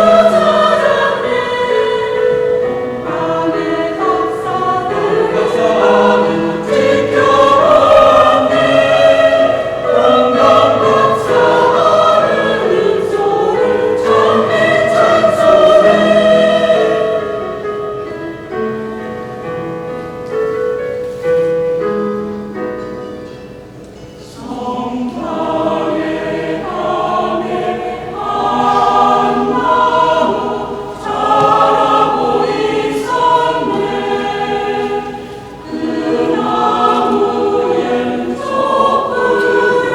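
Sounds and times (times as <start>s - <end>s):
church choir singing: 0.0s - 20.2s, 23.9s - 39.9s.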